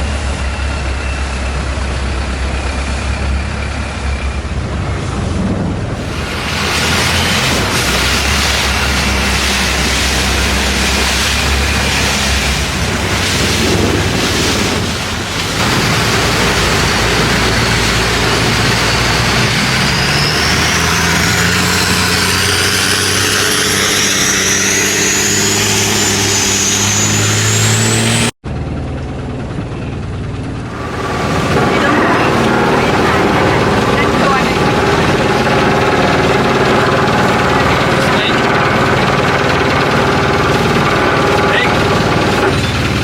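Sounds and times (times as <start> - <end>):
boat engine running hard: 0.0 - 43.0
wind rushing: 5.3 - 28.3, 30.6 - 40.4
water rushing: 6.0 - 28.3, 30.6 - 43.0.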